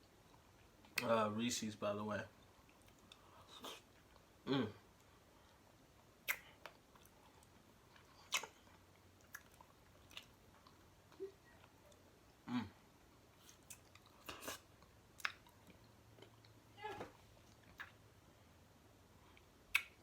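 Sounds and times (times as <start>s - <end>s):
person chewing: 2.4s - 12.4s, 13.3s - 16.6s, 17.4s - 18.0s
mouth clicks and smacks: 6.2s - 7.1s, 8.2s - 8.6s, 17.5s - 18.0s, 19.3s - 20.0s.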